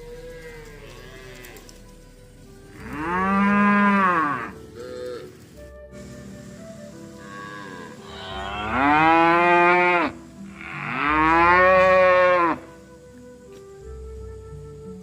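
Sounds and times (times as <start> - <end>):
cow mooing: 2.8 - 5.3, 7.2 - 12.8.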